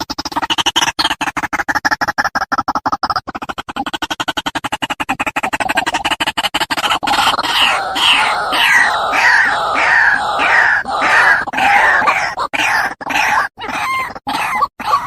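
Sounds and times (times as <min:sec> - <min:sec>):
waterhen harsh repeated calls: 0:06.7 - 0:15.0.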